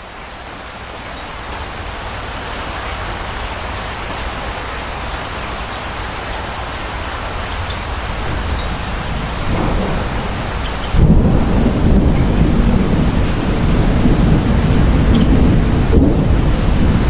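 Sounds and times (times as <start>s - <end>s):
steady rain: 0.0s - 17.0s
thunder rumbling: 7.9s - 17.0s.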